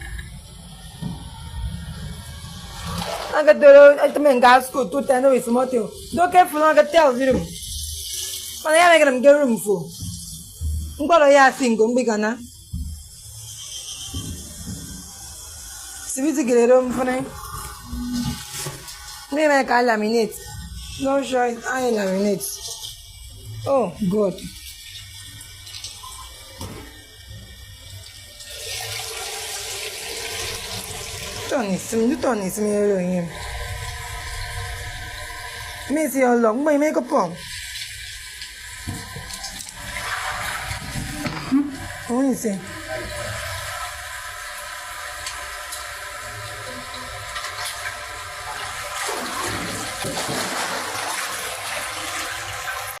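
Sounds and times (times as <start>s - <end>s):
water running: 0.0s - 53.0s
rushing splashing water: 47.3s - 53.0s.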